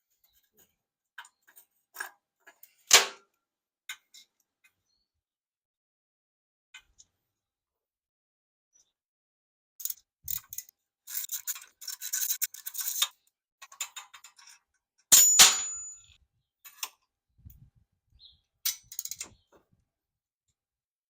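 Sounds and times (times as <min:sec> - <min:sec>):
metal tools scraping and clicking: 0:09.8 - 0:16.9
loud metallic clink: 0:15.1 - 0:16.2.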